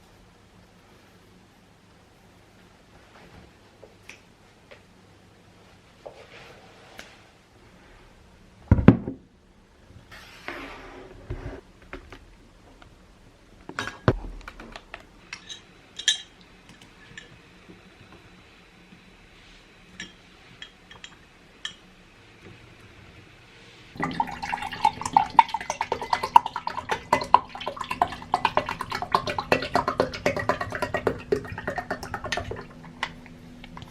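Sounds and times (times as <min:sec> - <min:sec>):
dishes and cutlery clinking: 0:15.3 - 0:16.4
liquid trickling: 0:23.9 - 0:33.9.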